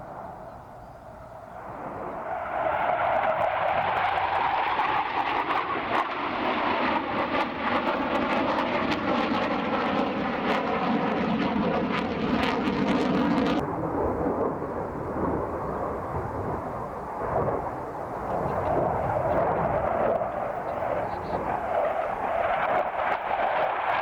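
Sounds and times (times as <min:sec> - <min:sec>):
jet aircraft roaring past: 0:00.0 - 0:24.0.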